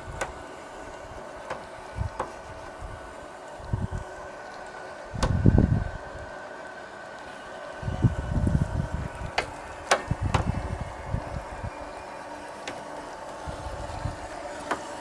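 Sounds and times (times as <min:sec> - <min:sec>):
motor hum: 0:00.0 - 0:15.0
low rumbling: 0:07.8 - 0:11.8.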